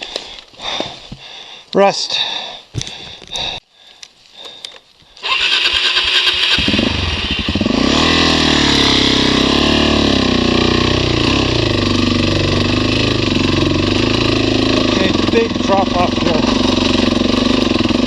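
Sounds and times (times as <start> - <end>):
motorcycle starter cranking: 5.2 - 7.7
motorcycle engine running: 5.3 - 18.0.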